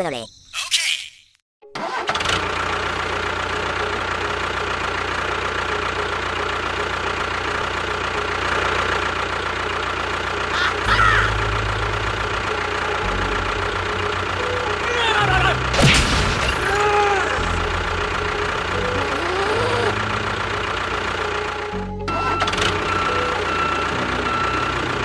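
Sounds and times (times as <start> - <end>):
engine running: 1.8 - 25.0
deep low rumble: 15.6 - 20.6.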